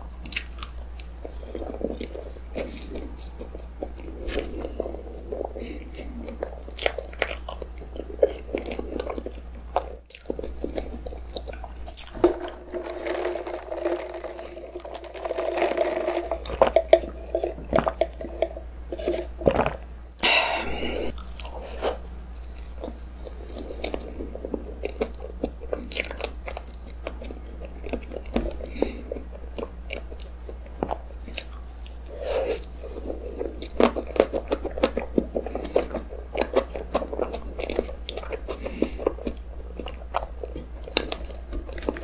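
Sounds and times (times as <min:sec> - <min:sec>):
chewing soft cake: 0:00.0 - 0:12.2, 0:20.8 - 0:42.0
sipping drink through straw: 0:12.0 - 0:19.6.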